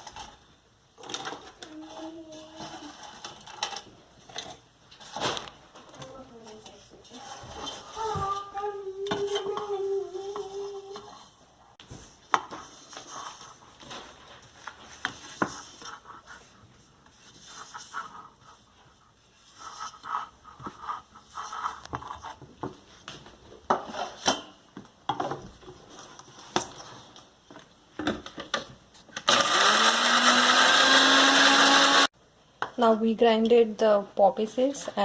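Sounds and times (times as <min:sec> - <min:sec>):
electric mixer grinder running: 0:29.2 - 0:32.1.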